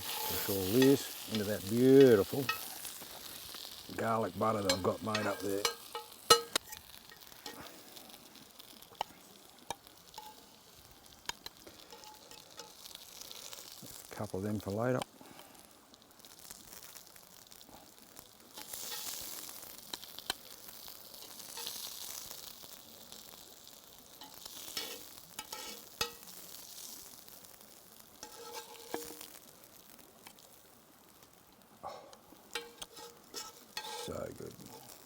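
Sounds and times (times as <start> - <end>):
utensil scraping a pan: 0.0 - 8.1, 9.7 - 10.5, 11.3 - 13.5, 18.6 - 20.1, 21.1 - 22.2, 24.2 - 26.4, 28.2 - 29.3, 32.0 - 35.0
food sizzling in a pan: 0.0 - 35.0.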